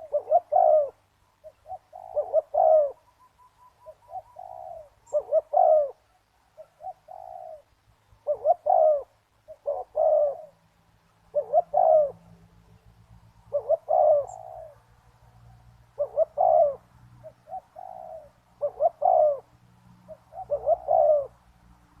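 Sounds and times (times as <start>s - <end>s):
dove cooing: 0.0s - 10.6s, 11.2s - 12.6s, 13.5s - 14.9s, 15.5s - 21.6s.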